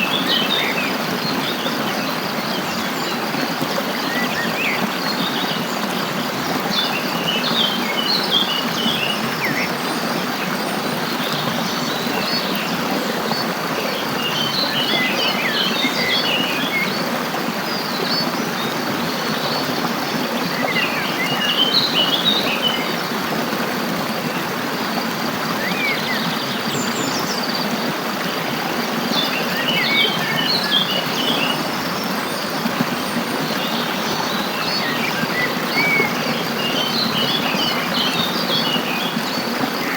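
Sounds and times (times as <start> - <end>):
running water rushing: 0.0 - 39.9
songbirds twittering: 0.0 - 39.9.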